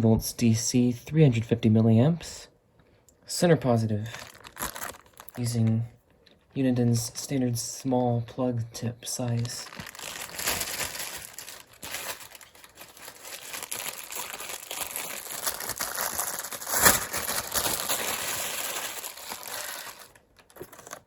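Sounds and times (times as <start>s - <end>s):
packaging crinkling: 4.1s - 5.5s, 9.2s - 21.0s.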